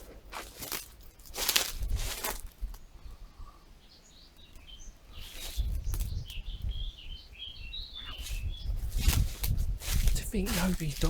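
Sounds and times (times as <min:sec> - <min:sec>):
small bird twittering: 0:02.8 - 0:11.0.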